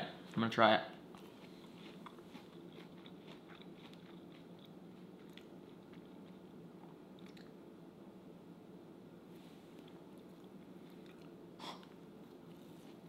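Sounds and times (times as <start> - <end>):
faint chewing with wet clicks: 1.1 - 7.6, 9.8 - 12.5.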